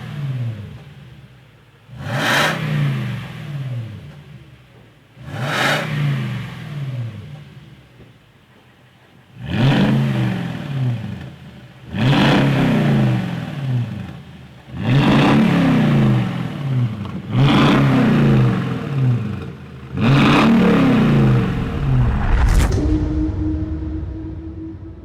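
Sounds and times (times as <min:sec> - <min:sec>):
truck engine revving: 0:11.8 - 0:25.0.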